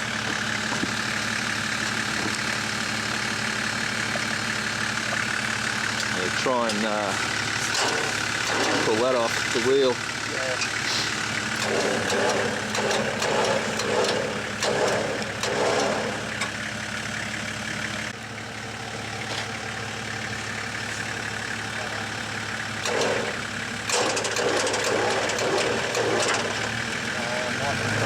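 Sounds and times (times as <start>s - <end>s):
motorcycle engine idling: 0.0s - 11.6s, 16.2s - 23.9s, 26.6s - 27.7s.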